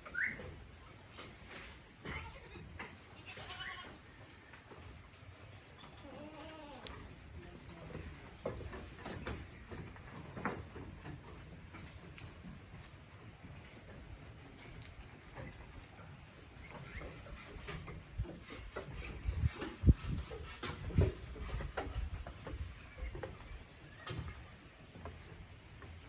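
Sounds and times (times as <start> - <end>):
goat hooves knocking: 7.0 - 23.6.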